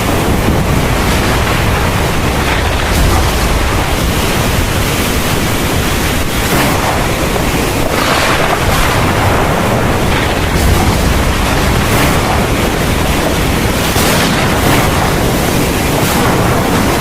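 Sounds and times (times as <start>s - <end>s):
heavy rain: 0.0s - 17.0s
low thunder rumble: 0.0s - 17.0s.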